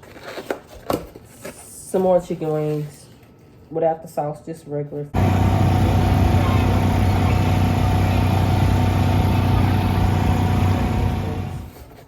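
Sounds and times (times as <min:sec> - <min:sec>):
motor humming: 0:05.2 - 0:11.8.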